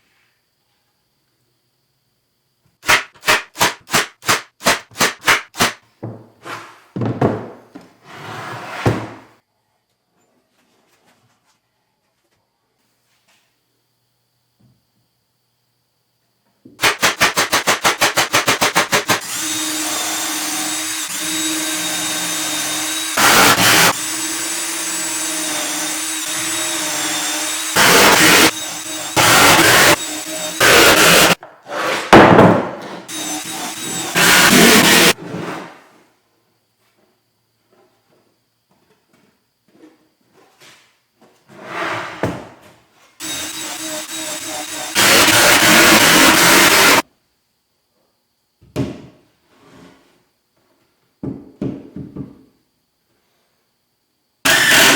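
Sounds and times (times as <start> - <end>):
knocks and handling of plywood: 6.0 - 8.0, 31.4 - 33.0, 48.6 - 49.3, 51.2 - 52.5
power tool motor whining: 19.2 - 31.4, 33.1 - 35.2, 43.2 - 47.0, 54.5 - 54.9.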